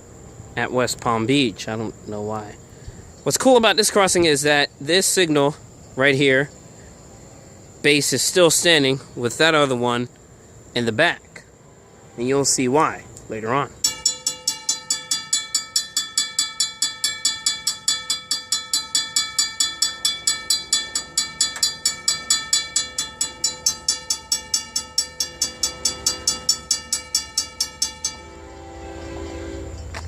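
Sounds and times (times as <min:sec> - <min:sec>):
low rumble of train: 0:00.0 - 0:03.2, 0:11.4 - 0:30.0
crossing bell ringing: 0:13.8 - 0:30.0.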